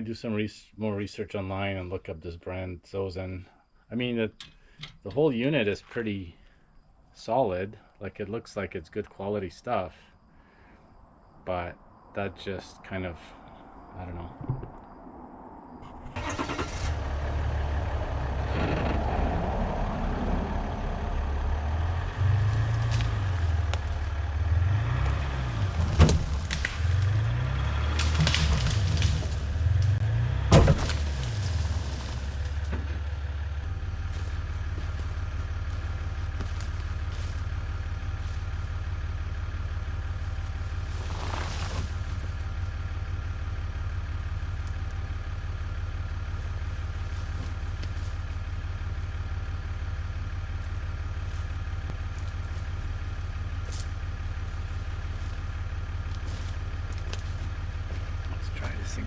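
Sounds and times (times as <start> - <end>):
vehicle engine running: 15.8 - 59.0.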